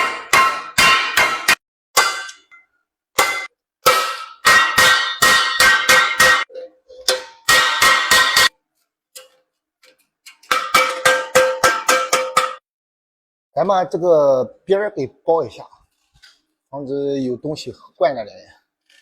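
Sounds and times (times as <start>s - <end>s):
hammer striking metal ladle: 0.0s - 2.6s, 3.2s - 8.6s, 10.5s - 12.6s.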